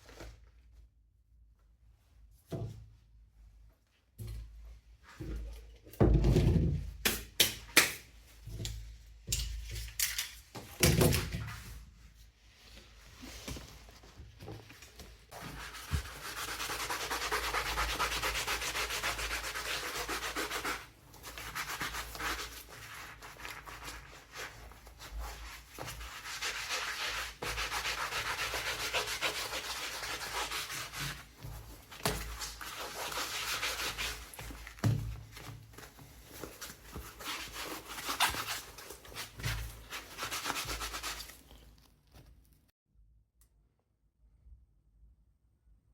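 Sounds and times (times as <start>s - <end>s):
leather being sanded by hand: 15.4s - 34.7s, 36.9s - 41.4s.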